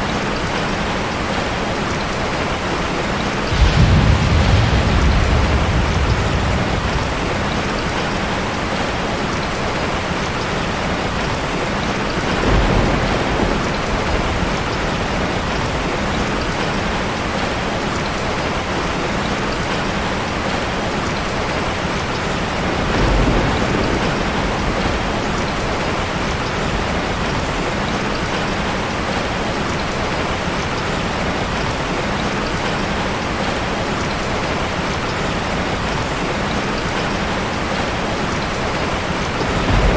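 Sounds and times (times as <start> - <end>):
heavy rain falling: 0.0 - 39.9
low rumble: 3.5 - 8.6.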